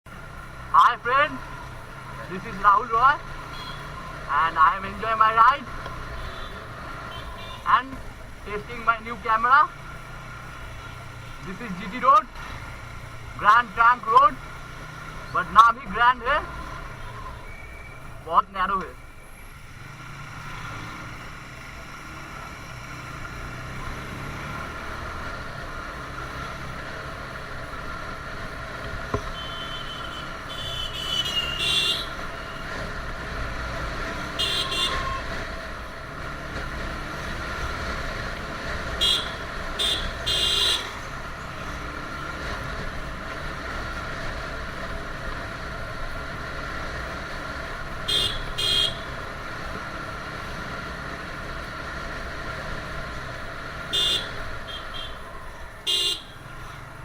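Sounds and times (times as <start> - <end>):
wind and road noise: 0.0 - 57.0
vehicle horns honking: 3.4 - 4.0, 6.1 - 7.8, 29.3 - 32.6, 34.2 - 35.4, 38.9 - 41.1, 48.0 - 49.2, 53.8 - 56.5.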